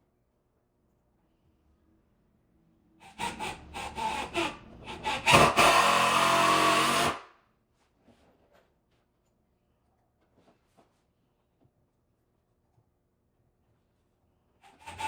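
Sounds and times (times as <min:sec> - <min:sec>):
saw cutting wood: 0:03.0 - 0:07.2, 0:14.6 - 0:15.0.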